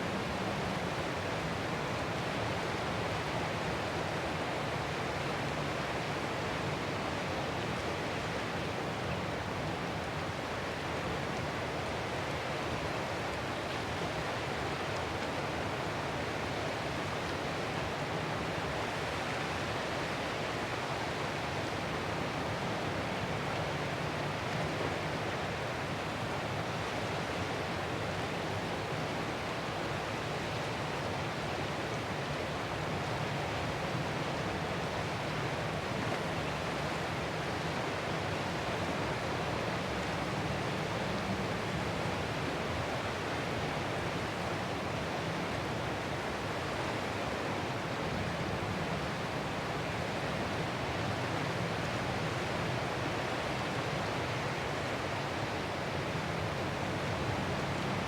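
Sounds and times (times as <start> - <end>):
ocean surf: 38.2 - 58.0.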